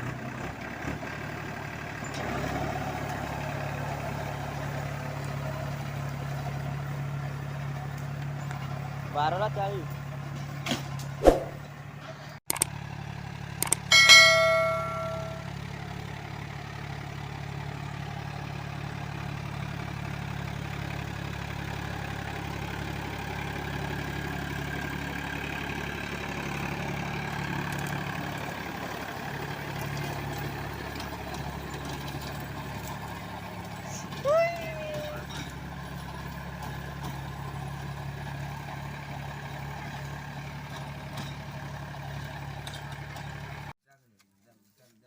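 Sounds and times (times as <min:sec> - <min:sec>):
tractor diesel engine running: 0:00.0 - 0:43.8
metallic clang: 0:13.9 - 0:15.6.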